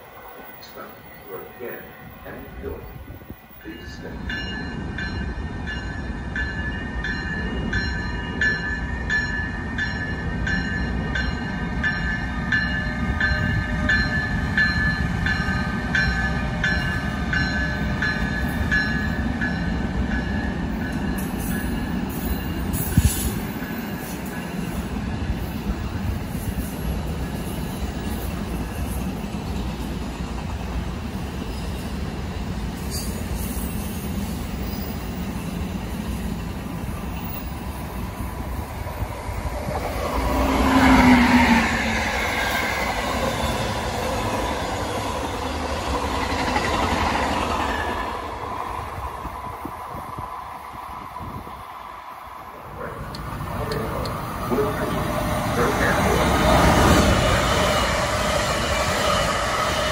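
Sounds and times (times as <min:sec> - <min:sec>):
train rumbling on rails: 0:00.0 - 0:59.9
train bell ringing: 0:03.5 - 0:25.0.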